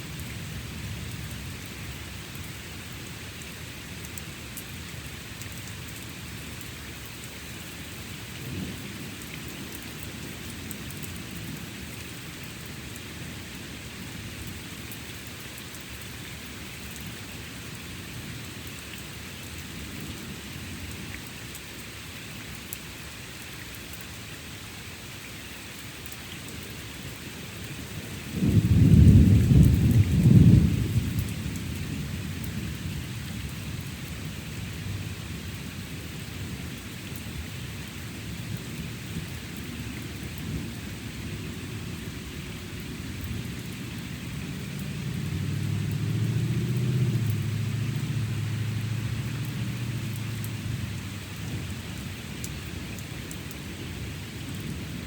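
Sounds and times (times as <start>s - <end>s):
steady rain falling: 0.0s - 55.0s
thunder rumbling: 28.3s - 32.8s.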